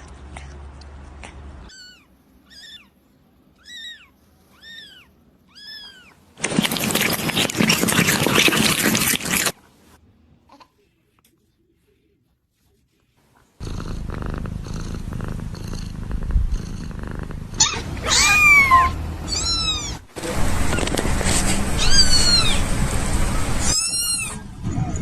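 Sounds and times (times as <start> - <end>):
kitten meowing: 1.7 - 2.9, 3.6 - 6.2, 17.5 - 20.1, 21.8 - 22.6, 23.6 - 24.4.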